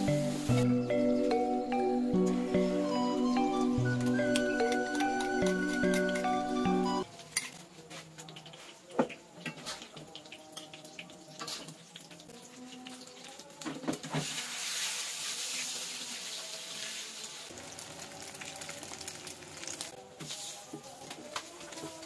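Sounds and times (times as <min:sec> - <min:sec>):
omelette sizzling in oil: 0:14.2 - 0:21.0.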